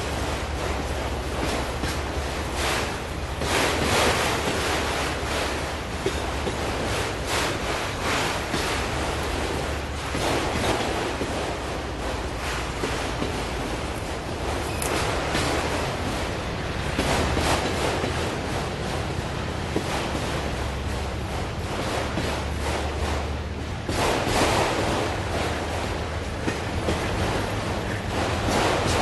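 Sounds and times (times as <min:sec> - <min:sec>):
freight train wheels on rail: 0:00.0 - 0:29.0.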